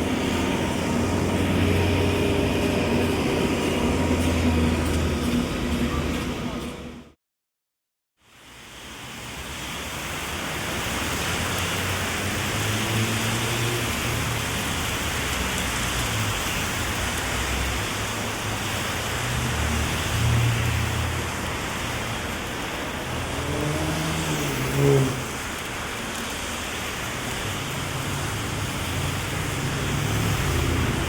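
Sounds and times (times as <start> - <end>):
heavy rain hiss: 0.0 - 4.9, 8.2 - 31.0
passing traffic rumble: 0.0 - 7.2, 9.6 - 31.0.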